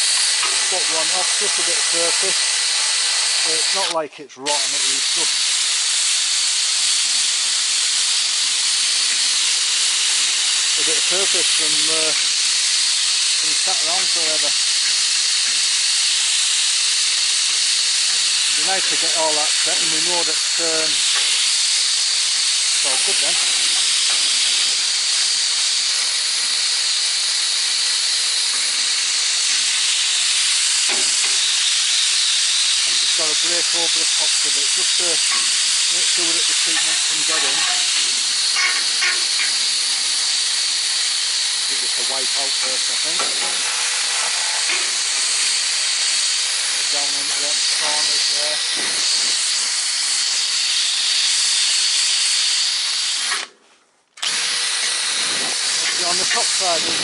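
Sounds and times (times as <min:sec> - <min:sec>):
compressed air blow gun hissing: 0:00.0 - 0:53.5, 0:54.2 - 0:57.0
wire brush spinning on steel: 0:06.2 - 0:50.0, 0:54.3 - 0:57.0.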